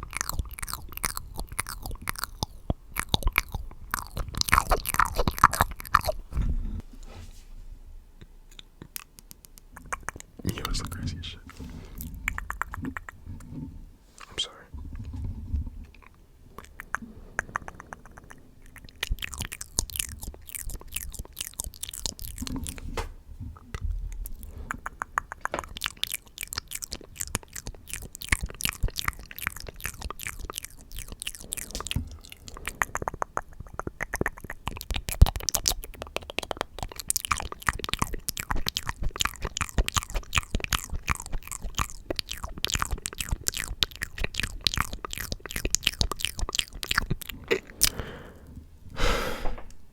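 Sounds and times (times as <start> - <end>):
wet mouth clicks and smacks: 0.0 - 6.3, 8.5 - 11.0, 11.9 - 13.2, 15.9 - 22.8, 24.2 - 48.1.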